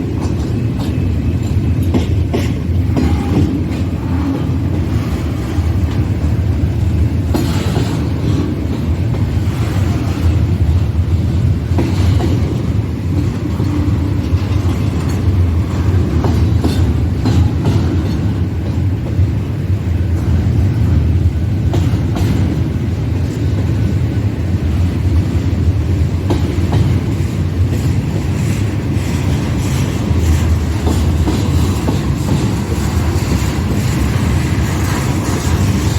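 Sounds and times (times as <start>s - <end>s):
train wheel clicks: 0.0s - 20.9s, 21.5s - 24.0s, 26.0s - 35.9s
train cars rumbling past: 0.0s - 35.9s.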